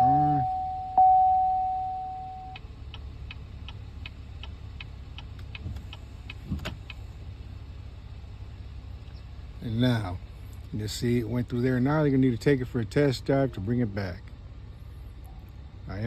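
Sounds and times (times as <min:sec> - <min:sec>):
electronic warning tone: 0:00.0 - 0:02.6
low hum: 0:00.0 - 0:02.8
even electronic ticks: 0:02.5 - 0:07.0.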